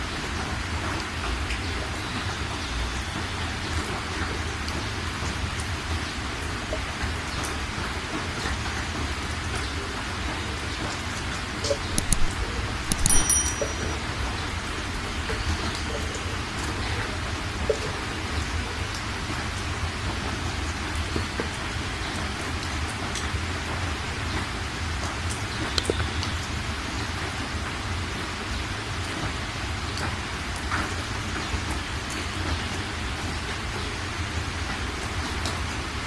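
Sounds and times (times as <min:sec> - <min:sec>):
sharp clicks: 0:11.9 - 0:13.8
metallic clink: 0:12.0 - 0:12.3, 0:12.9 - 0:14.1.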